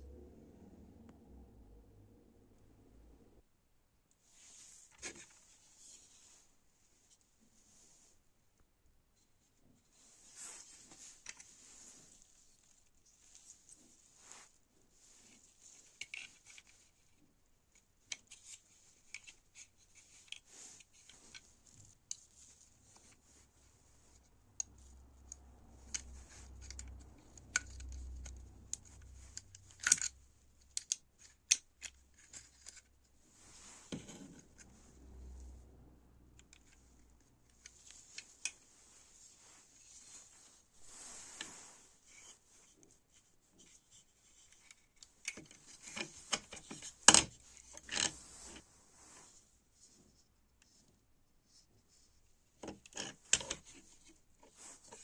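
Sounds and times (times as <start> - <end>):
small hand tools clicking and scraping: 15.1 - 23.4, 24.1 - 34.8, 36.4 - 48.6, 52.6 - 55.0.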